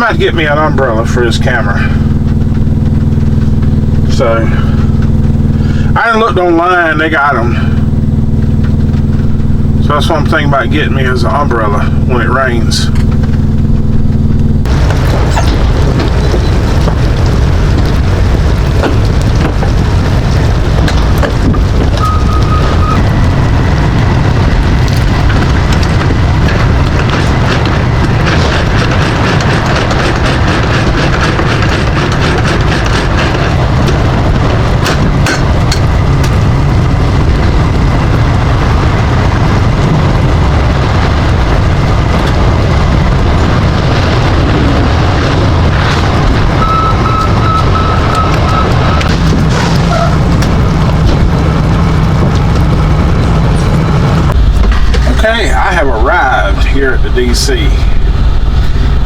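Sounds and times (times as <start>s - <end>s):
truck engine and road rumble: 0.0s - 59.0s
rain and tyre spray hissing: 14.7s - 34.9s
short tone: 21.9s - 23.2s, 46.6s - 49.1s.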